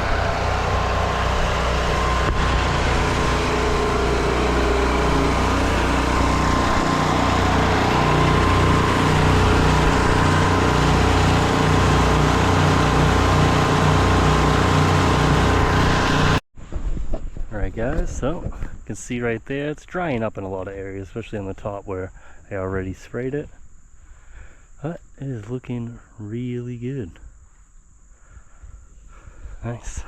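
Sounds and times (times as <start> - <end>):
small gasoline engine running: 0.0 - 16.4.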